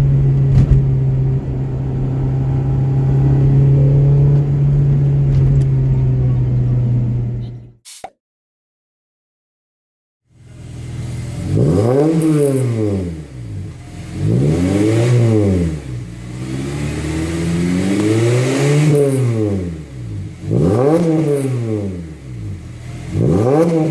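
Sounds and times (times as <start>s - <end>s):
car engine revving: 0.0s - 7.3s.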